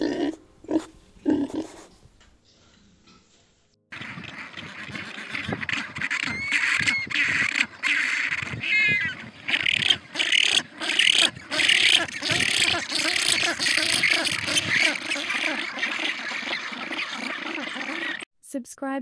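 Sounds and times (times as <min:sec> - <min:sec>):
ducks quacking: 0:03.9 - 0:18.2.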